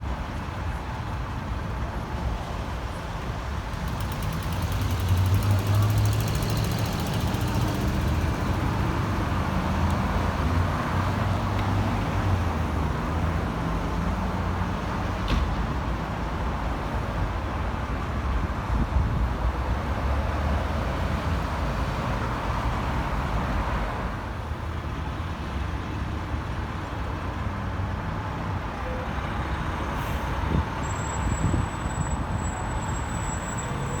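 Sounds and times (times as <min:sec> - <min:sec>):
road traffic: 0:00.0 - 0:34.0
diesel engine rumble passing: 0:03.4 - 0:15.2.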